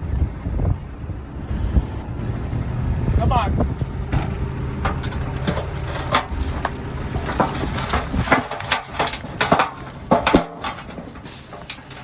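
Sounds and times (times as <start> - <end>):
backhoe engine rumbling: 0.0 - 12.0
sharp cracks and knocks: 4.1 - 12.0.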